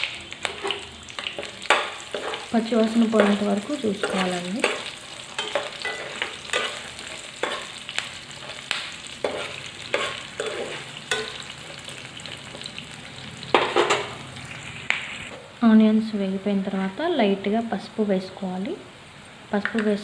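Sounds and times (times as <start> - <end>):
onions sizzling in hot oil: 0.0 - 20.0
spatula scraping and stirring: 0.4 - 12.8.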